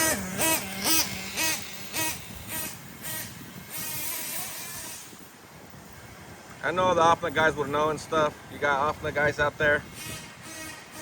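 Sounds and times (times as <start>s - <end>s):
model nitro engine revving: 0.0s - 5.2s, 9.9s - 11.0s.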